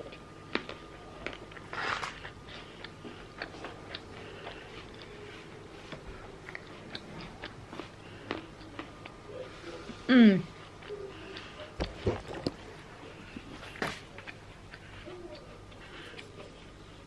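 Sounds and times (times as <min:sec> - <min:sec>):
soft chewing clicks: 0:00.0 - 0:09.4, 0:10.5 - 0:17.0.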